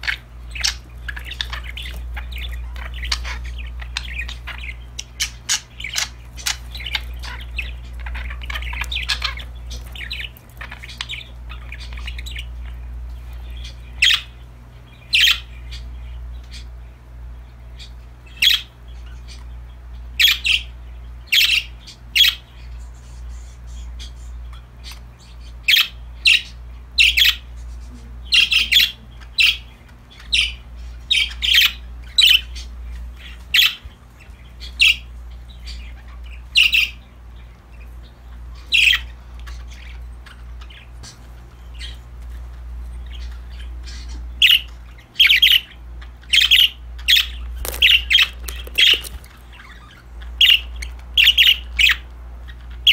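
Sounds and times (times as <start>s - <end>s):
steady low hum: 0.0s - 38.5s
budgerigars chirping and squawking: 0.0s - 52.9s.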